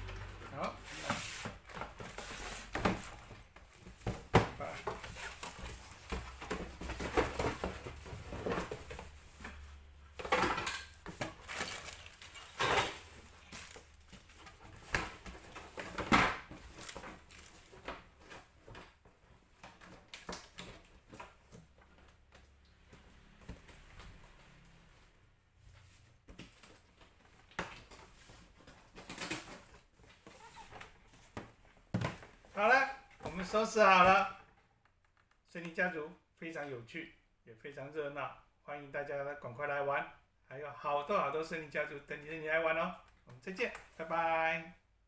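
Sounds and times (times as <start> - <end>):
rustling: 10.9 - 22.2.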